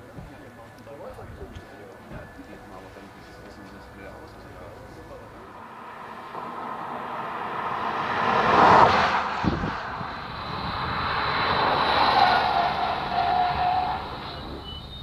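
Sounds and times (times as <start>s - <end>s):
car engine driving past: 4.8s - 14.6s.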